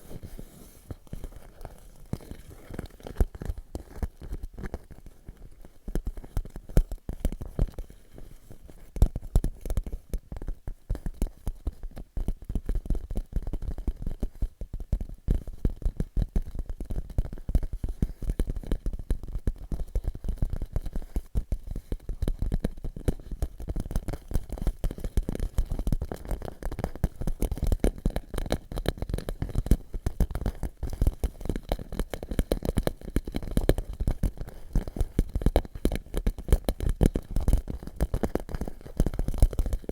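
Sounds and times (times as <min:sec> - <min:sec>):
fingertips tapping on plastic pouch: 0:15.0 - 0:39.9.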